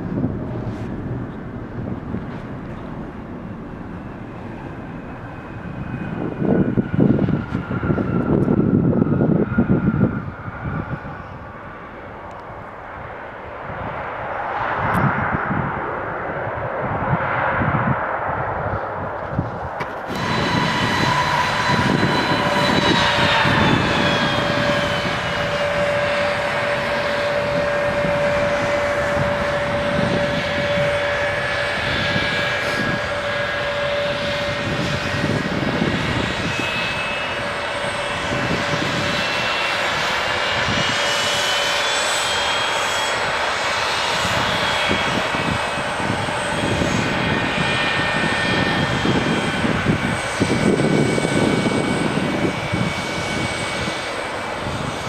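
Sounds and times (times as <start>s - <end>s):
airliner engines roaring: 0.0s - 55.0s
sliding whining tones: 19.2s - 55.0s.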